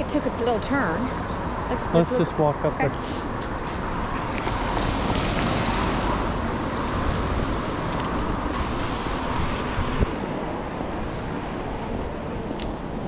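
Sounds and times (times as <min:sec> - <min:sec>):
city street background noise: 0:00.0 - 0:13.0
wind buffeting microphone: 0:03.3 - 0:13.0.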